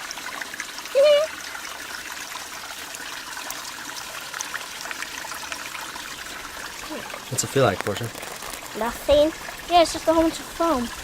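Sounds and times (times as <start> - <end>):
stream flowing over rocks: 0.0 - 11.0
child high vocal sound: 1.0 - 1.3.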